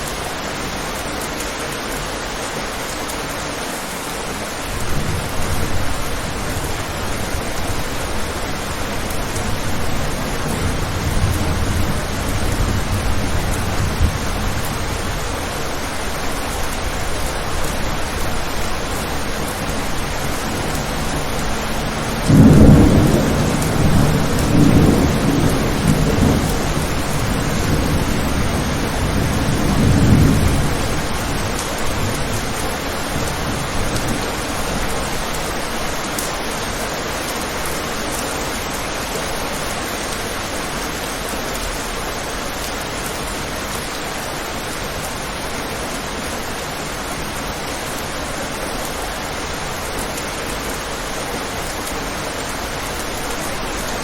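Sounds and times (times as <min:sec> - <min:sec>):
steady rain: 0:00.0 - 0:54.0
rolling thunder: 0:04.7 - 0:35.9.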